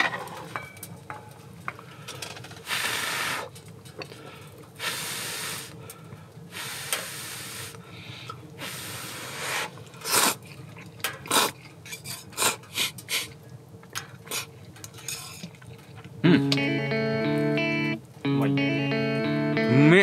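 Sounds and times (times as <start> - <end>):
camp stove hiss: 1.8 - 15.4.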